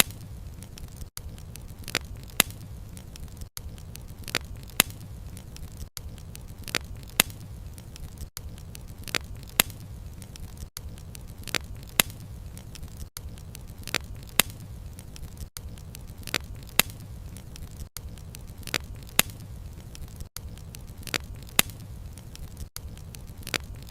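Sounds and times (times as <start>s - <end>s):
burning wood popping and snapping: 0.0s - 23.9s
low rumble of flames: 0.0s - 23.9s
wood fire crackling: 0.0s - 23.9s.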